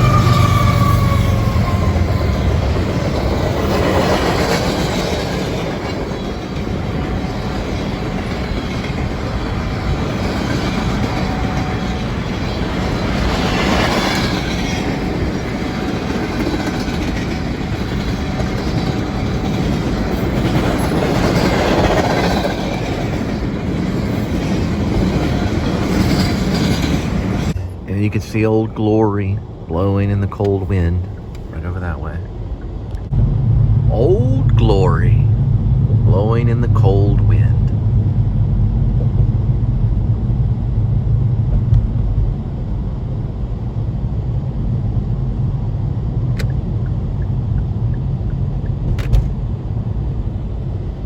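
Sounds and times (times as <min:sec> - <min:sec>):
train wheels clattering on rails: 0:00.0 - 0:27.8.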